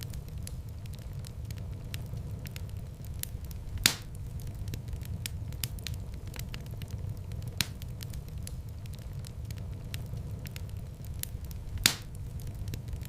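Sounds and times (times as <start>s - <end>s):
fire crackling: 0.0s - 13.0s
low rumble of flames: 0.0s - 13.0s
loud sharp pop of fire: 3.2s - 6.5s, 11.2s - 13.0s.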